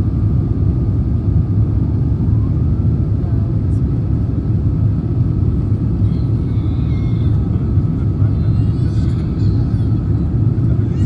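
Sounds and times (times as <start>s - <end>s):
airplane cabin engine rumble: 0.0s - 11.0s.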